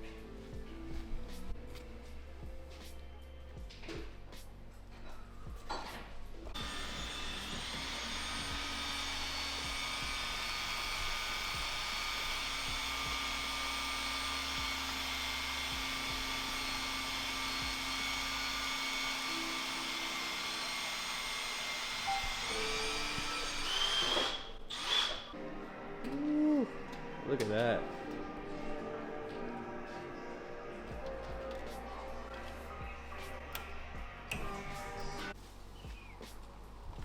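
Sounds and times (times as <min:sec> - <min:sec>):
electric motor whining: 0:06.6 - 0:25.3.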